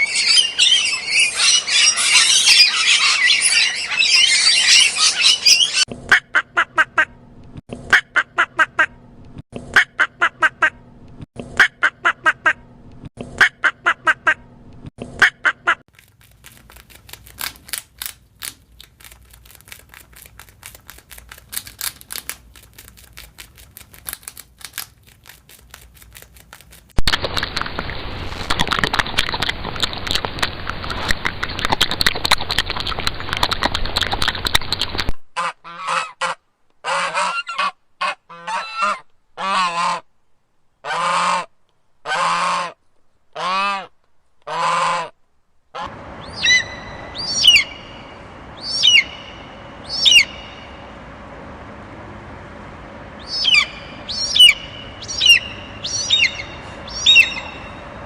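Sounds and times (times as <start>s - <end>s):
waterfowl honking calls: 53.2s - 58.0s.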